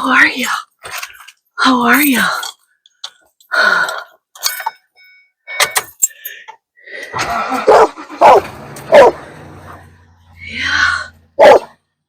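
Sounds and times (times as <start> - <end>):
dog barking: 7.6 - 9.2, 11.4 - 11.8.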